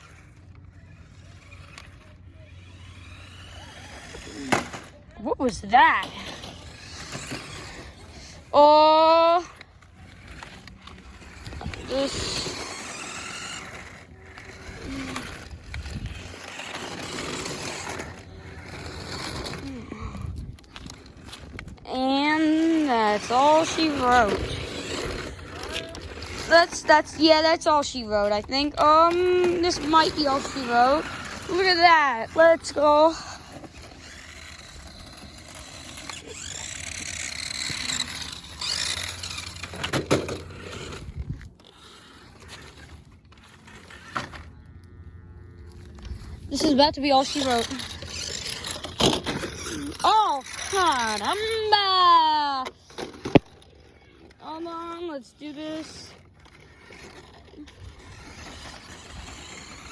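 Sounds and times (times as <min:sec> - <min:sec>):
electric motor whining: 0:00.0 - 0:59.9
remote-control car wheels rolling: 0:00.0 - 0:59.9
tyre noise: 0:02.7 - 0:44.6.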